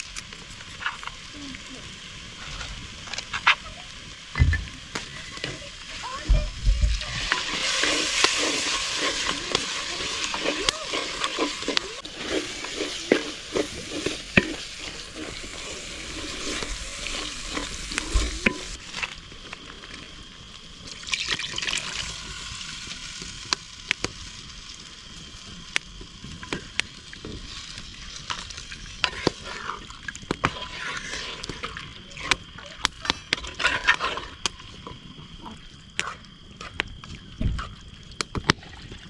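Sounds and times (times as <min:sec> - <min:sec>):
meat sizzling in a pan: 0:00.0 - 0:36.8
utensil scraping a pan: 0:06.9 - 0:19.0, 0:28.2 - 0:32.4, 0:33.0 - 0:34.5.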